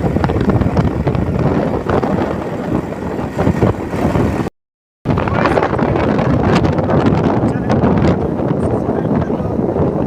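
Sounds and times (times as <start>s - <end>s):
noisy buffeting: 0.0s - 4.5s, 5.1s - 10.0s
vehicle engine roaring: 0.0s - 4.5s.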